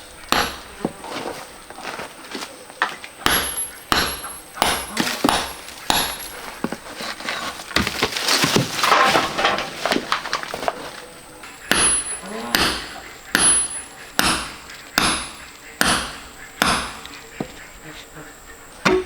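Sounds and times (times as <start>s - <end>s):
stones clacking together: 2.8s - 13.7s
stones rattling scrape: 4.9s - 11.2s.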